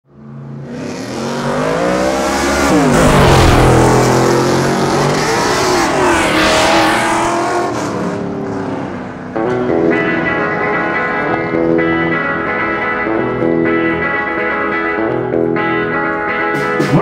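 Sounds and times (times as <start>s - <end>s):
car engine revving hard: 0.6s - 9.3s.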